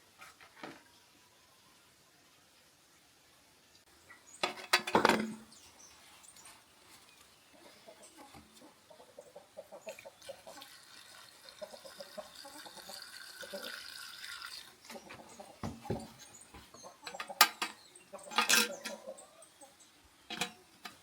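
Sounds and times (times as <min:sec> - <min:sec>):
chickens clucking: 0:07.5 - 0:13.9, 0:14.7 - 0:21.0.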